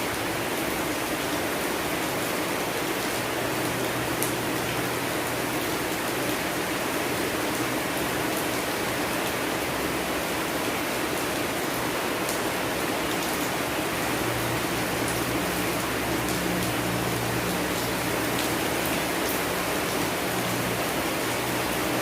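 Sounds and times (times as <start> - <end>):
steady rain hiss: 0.0 - 22.0.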